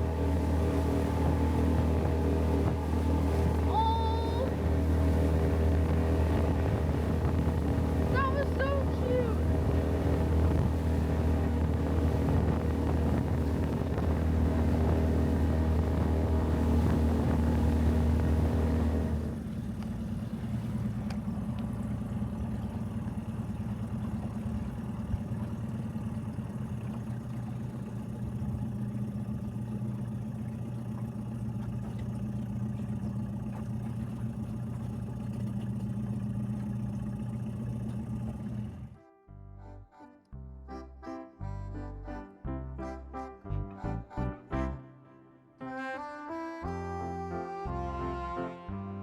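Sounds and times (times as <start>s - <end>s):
outboard motor running: 0.0s - 44.8s, 45.9s - 49.0s.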